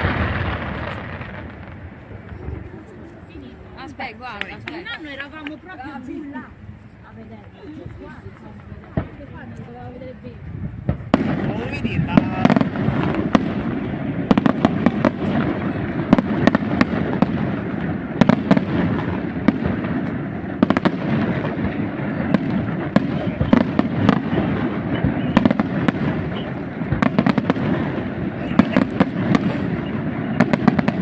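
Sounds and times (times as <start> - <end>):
rumble of booms: 0.0 - 2.8, 10.4 - 31.0
firework bangs and crackling: 0.0 - 31.0.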